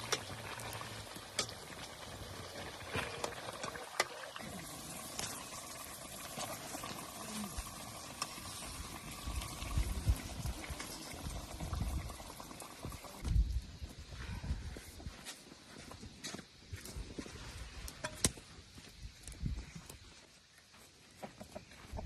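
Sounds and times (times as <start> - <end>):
liquid boiling in a pot: 0.0 - 13.3.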